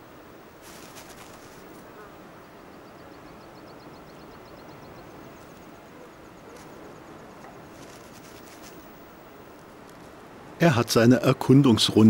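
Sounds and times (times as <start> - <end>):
outdoor hiss: 0.0 - 12.0.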